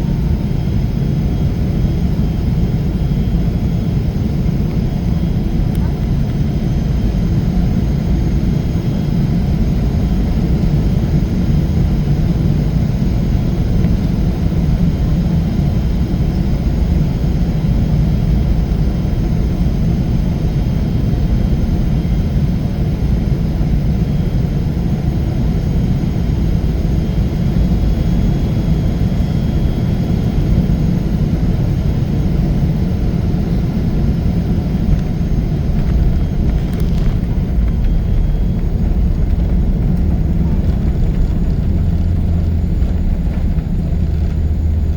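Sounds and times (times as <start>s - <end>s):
jet engine rumble in cabin: 0.0s - 44.9s
faint high-pitched whines: 33.5s - 44.8s.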